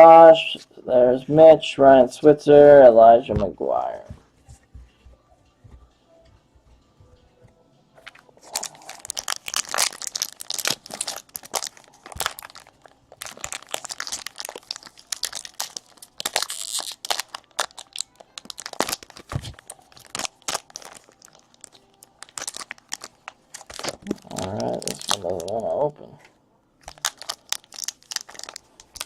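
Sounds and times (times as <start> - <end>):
wrapper crinkling and tearing: 8.0 - 25.9, 26.8 - 29.0.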